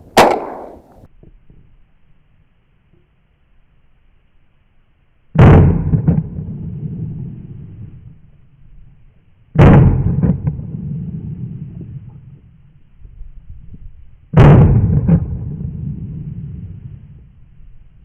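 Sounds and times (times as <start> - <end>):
shotgun shots with echo: 0.0 - 1.1.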